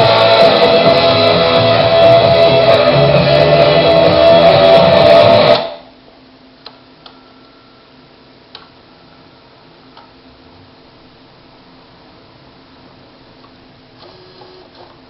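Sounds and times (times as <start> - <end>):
guitar rock music from cassette: 0.0 - 5.8.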